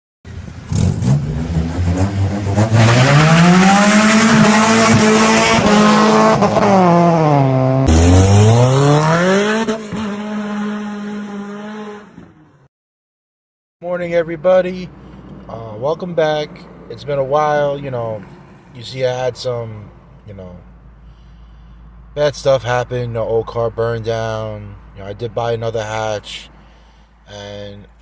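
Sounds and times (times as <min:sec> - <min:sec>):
car engine revving hard: 0:00.6 - 0:12.4.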